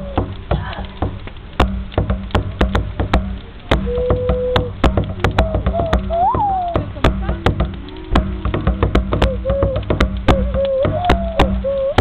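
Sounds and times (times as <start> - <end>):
drum hits: 0.0 - 12.0
hooting call: 3.8 - 12.0.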